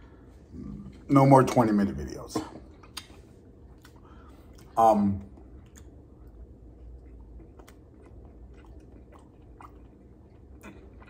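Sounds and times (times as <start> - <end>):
faint chewing: 2.4 - 11.0.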